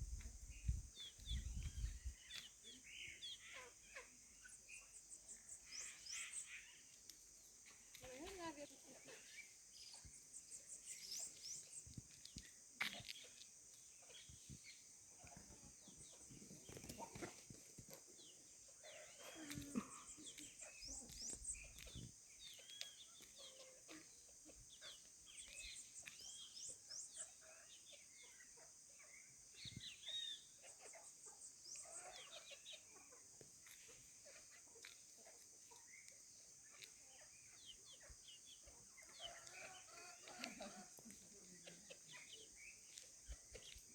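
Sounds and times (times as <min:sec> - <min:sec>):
small birds chirping: 0:00.0 - 0:43.9
chickens calling: 0:15.1 - 0:43.9.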